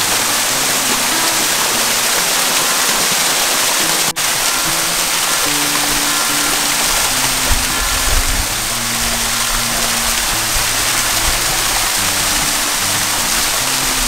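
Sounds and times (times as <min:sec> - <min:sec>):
slow low background music: 0:00.0 - 0:14.0
waterfall rushing: 0:00.0 - 0:14.0.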